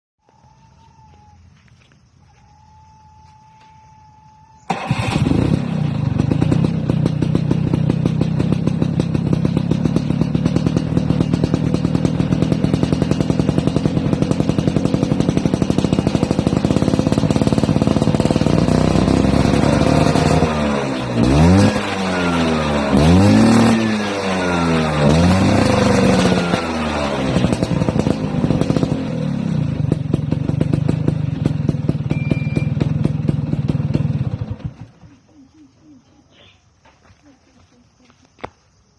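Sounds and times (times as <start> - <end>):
scooter engine idling and revving: 4.6 - 35.3.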